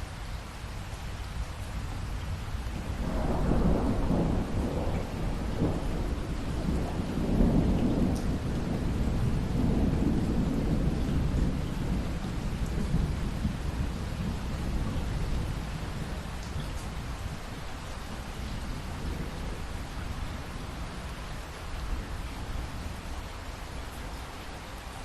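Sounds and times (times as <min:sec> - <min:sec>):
steady rain: 0:00.0 - 0:25.0
thunder rumbling: 0:02.8 - 0:21.2.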